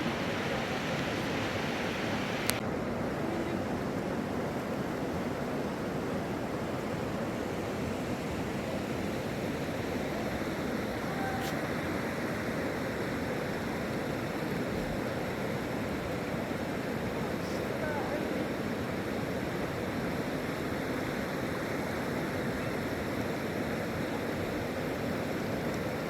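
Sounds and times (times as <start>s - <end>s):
river water rushing: 0.0s - 26.0s
faint click: 2.4s - 2.6s.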